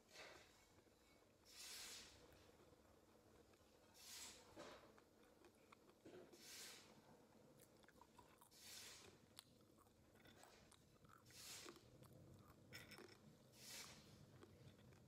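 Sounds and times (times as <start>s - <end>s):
person chewing crunchy snacks: 4.8s - 6.2s, 7.4s - 15.0s.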